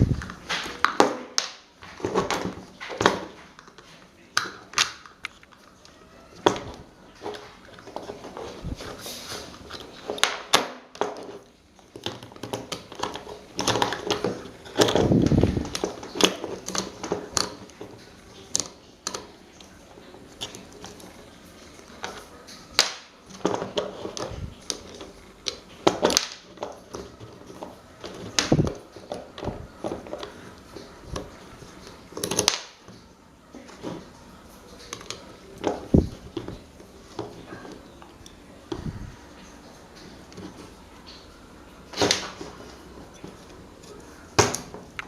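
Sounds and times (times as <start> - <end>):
tools clicking and knocking on metal: 0.2 - 33.0.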